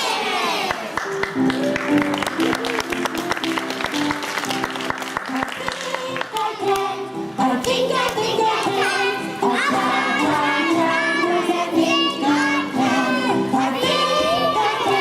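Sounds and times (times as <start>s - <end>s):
musical accompaniment: 0.8s - 15.0s
children singing: 5.6s - 15.0s.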